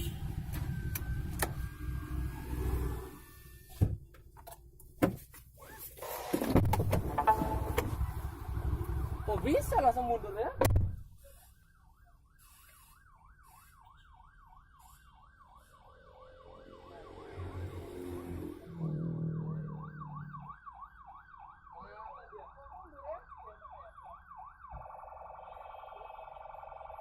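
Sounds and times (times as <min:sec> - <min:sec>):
vehicle noise: 0:00.0 - 0:21.2
emergency siren wailing: 0:07.0 - 0:27.0.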